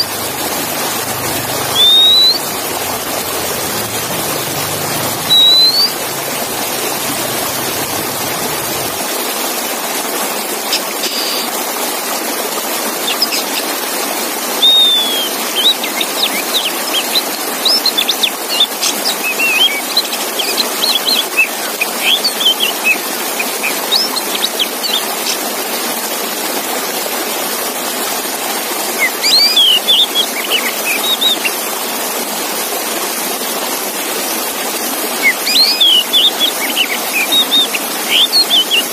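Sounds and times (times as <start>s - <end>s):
magpie-robin song: 0.0s - 8.9s, 13.0s - 13.7s, 14.6s - 25.5s, 29.0s - 31.6s, 35.2s - 38.9s
steady rushing hiss: 0.0s - 10.0s.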